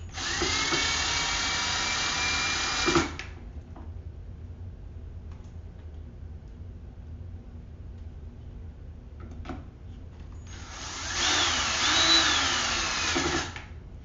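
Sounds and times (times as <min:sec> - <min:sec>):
power screwdriver motor whine: 0:10.5 - 0:13.6.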